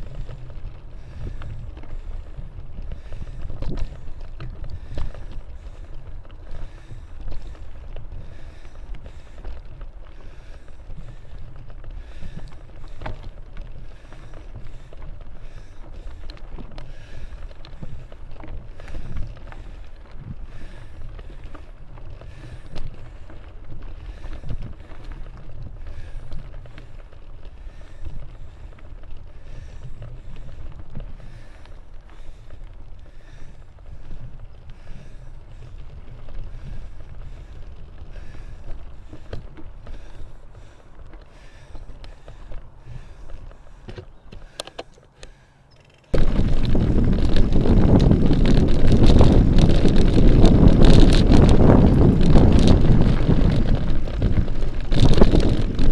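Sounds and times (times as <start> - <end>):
wind buffeting microphone: 0.0 - 44.7, 46.1 - 55.9
bicycle knocks and rattles: 1.0 - 9.6, 38.1 - 55.9.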